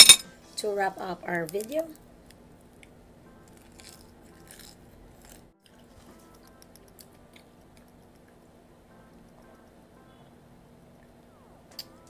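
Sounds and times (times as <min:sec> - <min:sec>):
crunchy bites: 0:03.4 - 0:07.9
person chewing: 0:03.4 - 0:08.4.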